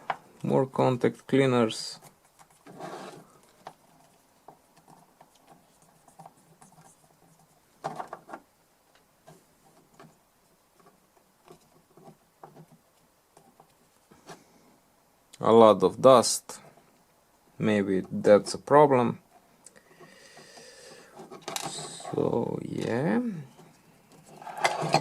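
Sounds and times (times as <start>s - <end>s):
scrapes: 1.9s - 4.1s, 20.3s - 22.3s, 23.5s - 25.0s.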